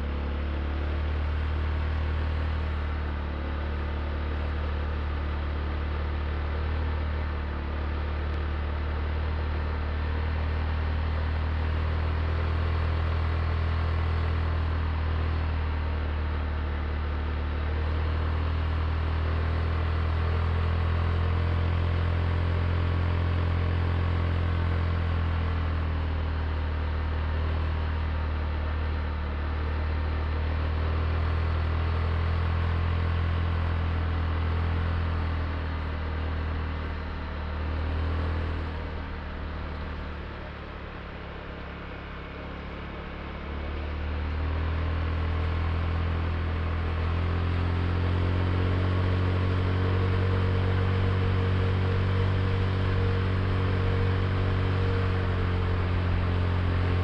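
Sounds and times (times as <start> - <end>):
scooter engine running: 46.6 - 57.0.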